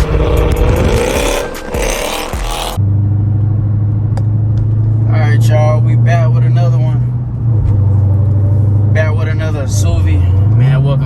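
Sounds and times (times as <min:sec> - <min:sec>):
car engine idling: 0:00.0 - 0:02.8
music with car sounds: 0:00.0 - 0:05.1.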